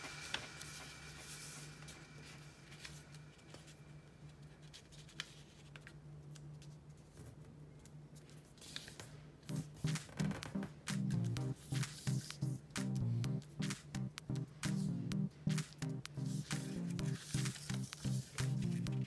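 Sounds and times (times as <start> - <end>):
paper being handled and folded: 0.0 - 10.5, 15.5 - 19.0
low electrical hum: 0.0 - 19.0.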